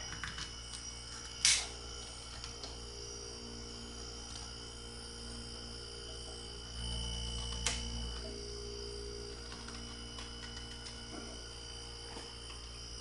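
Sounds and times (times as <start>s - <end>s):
compressor low hum: 0.0s - 13.0s.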